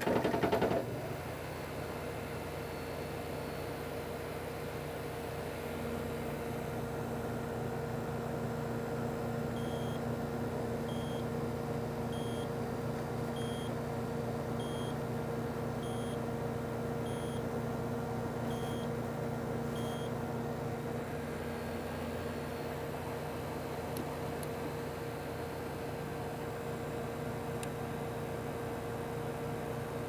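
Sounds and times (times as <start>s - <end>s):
compressor humming: 9.5s - 11.3s, 13.1s - 20.2s
short high beeps: 9.6s - 10.0s, 10.9s - 11.2s, 12.2s - 12.4s, 13.4s - 13.7s, 14.6s - 15.0s, 15.8s - 16.2s, 17.1s - 17.4s, 18.5s - 18.9s, 19.8s - 20.1s.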